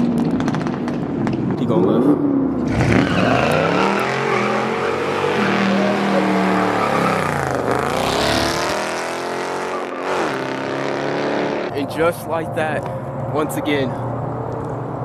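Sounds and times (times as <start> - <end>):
car engine accelerating hard: 2.1 - 11.7.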